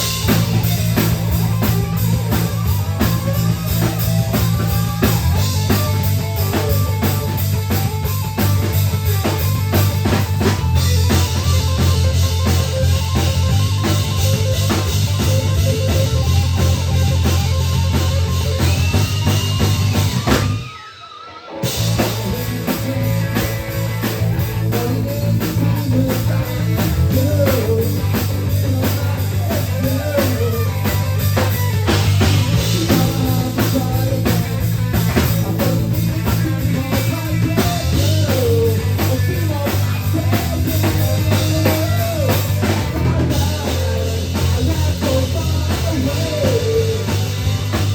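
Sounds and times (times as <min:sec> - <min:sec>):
rock song with drums and guitar: 0:00.0 - 0:47.9.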